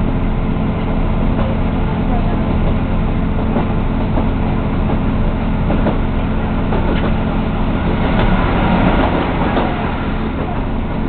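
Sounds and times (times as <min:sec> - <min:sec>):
train engine and wheels rumbling: 0:00.0 - 0:11.0.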